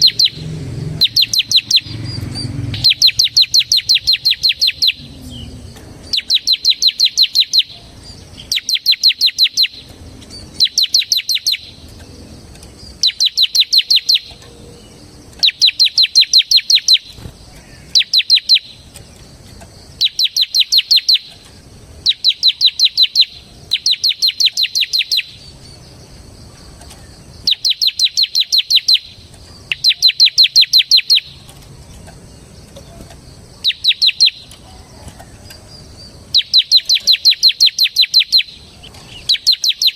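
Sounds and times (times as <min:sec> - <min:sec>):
bird singing fast high notes: 0:00.0 - 0:11.8.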